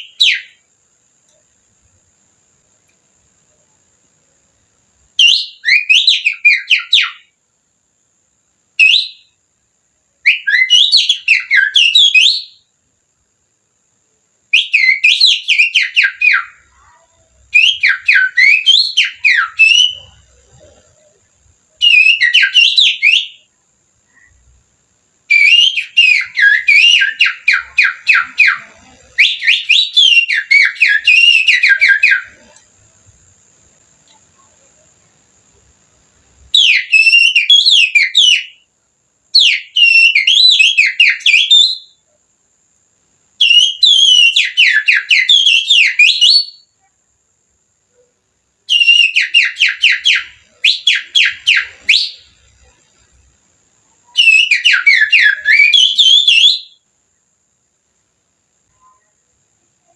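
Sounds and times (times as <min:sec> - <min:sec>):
human whistling bird song: 0:00.0 - 0:00.6, 0:05.2 - 0:07.3, 0:08.8 - 0:09.4, 0:10.3 - 0:12.6, 0:14.5 - 0:16.9, 0:17.5 - 0:20.2, 0:21.8 - 0:23.5, 0:25.3 - 0:32.6, 0:36.6 - 0:38.6, 0:39.4 - 0:42.0, 0:43.4 - 0:46.7, 0:48.7 - 0:52.3, 0:54.1 - 0:56.8.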